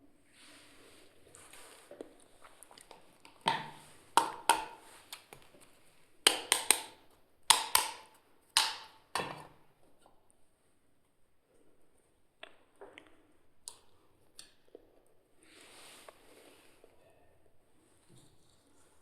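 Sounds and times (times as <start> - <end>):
toy kitchen pieces knocking: 6.3 - 9.6.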